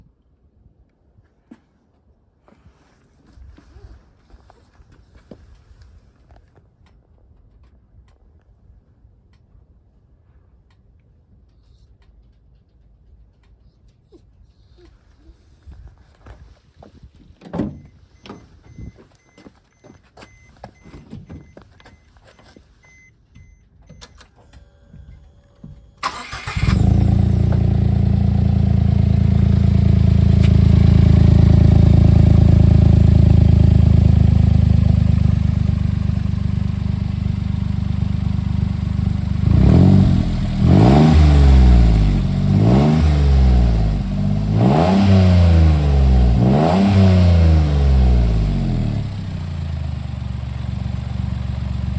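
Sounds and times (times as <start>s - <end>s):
truck engine idling and revving: 26.0s - 51.9s.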